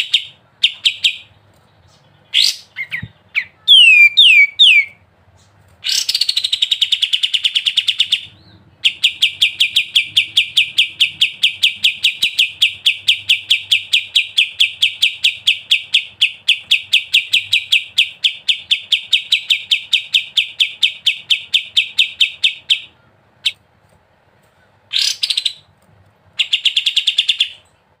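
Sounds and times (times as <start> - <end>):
songbird rapid trill: 2.3 - 5.0.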